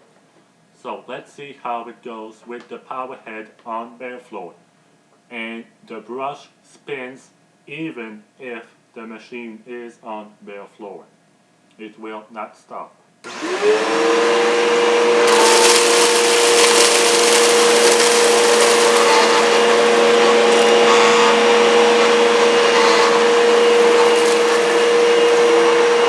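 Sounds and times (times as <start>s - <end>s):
vacuum cleaner motor whine: 13.2s - 26.0s
brush spinning on floor: 15.2s - 26.0s
debris crackling and rattling: 15.3s - 20.6s.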